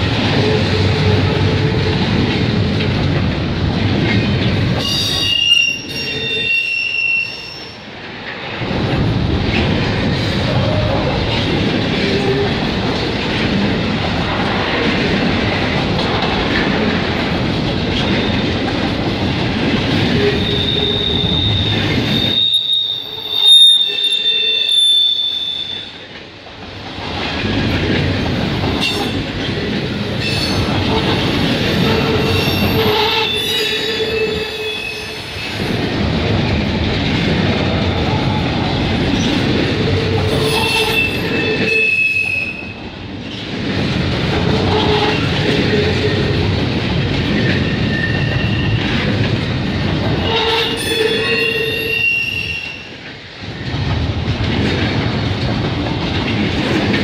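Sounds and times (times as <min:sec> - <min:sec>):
steel wheels rumbling on rail: 0:00.0 - 0:57.0
shrill wheel squeals: 0:04.8 - 0:07.9, 0:20.3 - 0:26.0, 0:31.8 - 0:35.5, 0:40.3 - 0:42.8, 0:47.6 - 0:49.0, 0:50.2 - 0:53.0.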